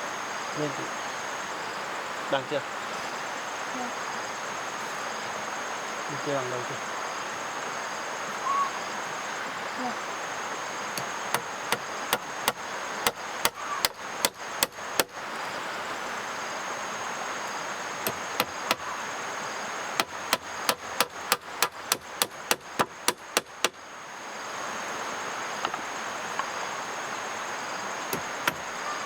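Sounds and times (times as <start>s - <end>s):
tool knocking on wood: 11.3s - 15.1s, 18.0s - 18.8s, 20.0s - 23.8s, 28.1s - 28.6s.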